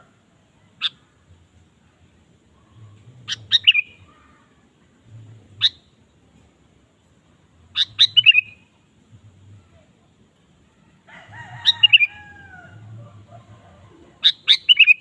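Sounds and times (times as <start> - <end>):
bulbul calling: 2.6 - 4.4, 5.6 - 6.0, 7.7 - 8.8, 11.6 - 12.2, 13.0 - 15.0.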